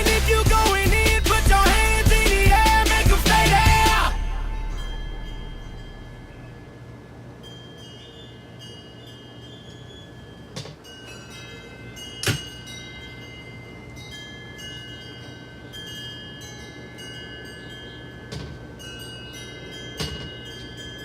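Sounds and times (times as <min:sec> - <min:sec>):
low steady hum: 0:00.0 - 0:08.0
wind chimes ringing: 0:00.0 - 0:21.0.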